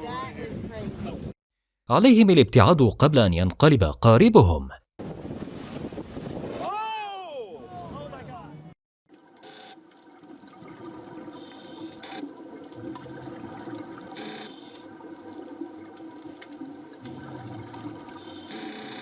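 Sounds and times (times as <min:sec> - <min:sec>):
underwater water noise: 0:09.2 - 0:19.0
rush of bubbles: 0:10.2 - 0:18.6.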